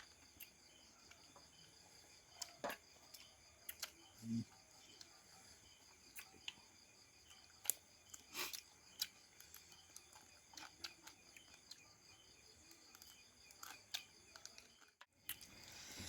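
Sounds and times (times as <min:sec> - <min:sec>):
person chewing: 0:02.4 - 0:05.2, 0:07.2 - 0:11.9, 0:12.6 - 0:16.0.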